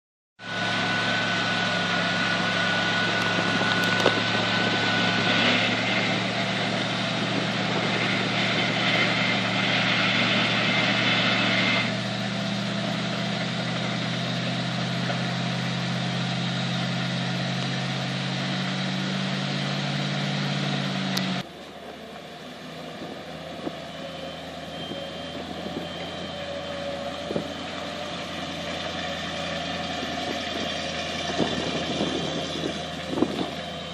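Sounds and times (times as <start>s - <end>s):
truck engine idling: 0.4s - 33.9s.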